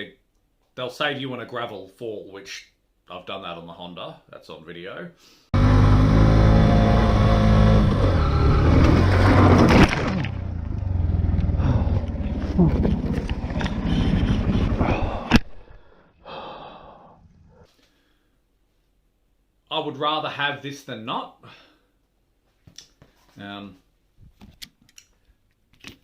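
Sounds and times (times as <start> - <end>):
motorcycle engine running: 5.6 - 15.0
motorcycle falling on gravel: 8.7 - 11.0
person gasping: 11.5 - 13.0, 13.8 - 18.4.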